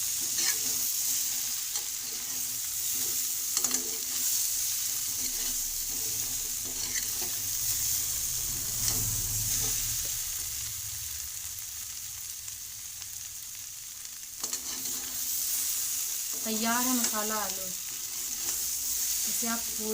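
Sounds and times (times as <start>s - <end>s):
stirring scrape in pan: 0.0s - 10.2s, 14.4s - 19.6s
potatoes sizzling in oil: 0.0s - 19.9s.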